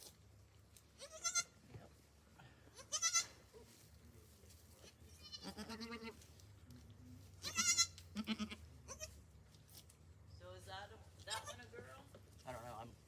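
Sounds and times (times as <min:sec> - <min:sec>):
goat kids bleating: 0:00.9 - 0:01.6, 0:02.7 - 0:03.5, 0:05.1 - 0:06.2, 0:07.3 - 0:09.2, 0:11.2 - 0:11.7.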